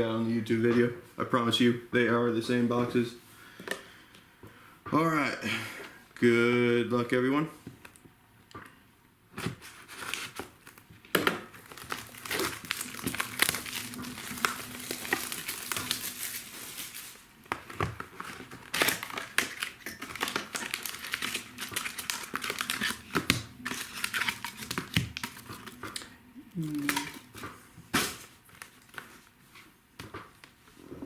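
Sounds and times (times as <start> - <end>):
plastic shrink-wrap crinkling and tearing: 9.4 - 29.6.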